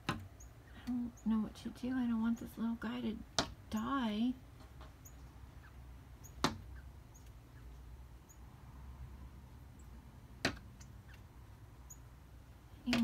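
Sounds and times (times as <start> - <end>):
bird knocking on window glass: 6.2 - 6.8, 10.4 - 10.8.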